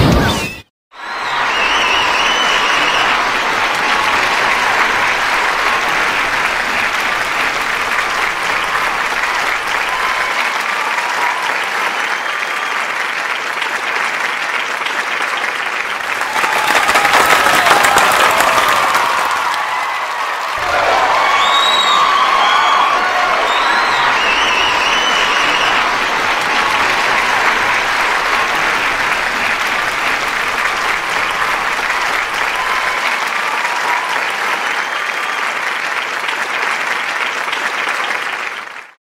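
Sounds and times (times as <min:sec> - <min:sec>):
cheers and shouting voices: 0:00.0 - 0:13.0, 0:16.0 - 0:35.6
audience applauding: 0:00.9 - 0:39.0.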